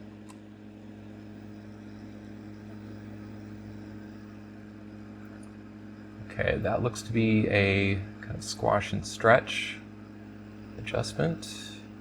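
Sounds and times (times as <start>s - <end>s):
electrical hum and buzz: 0.0s - 12.0s.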